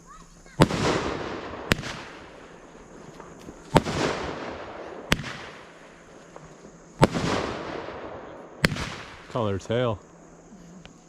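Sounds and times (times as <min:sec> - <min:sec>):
firework hissing tail: 0:00.0 - 0:11.0
firework shot bang: 0:00.6 - 0:02.5, 0:03.2 - 0:09.4.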